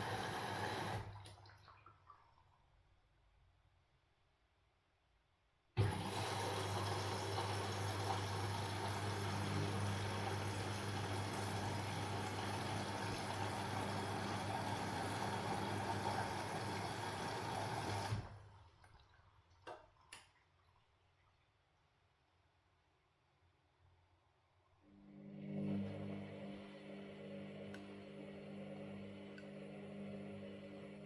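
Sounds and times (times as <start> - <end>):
washing machine water rushing: 0.0 - 2.5, 5.8 - 20.1, 25.2 - 31.0.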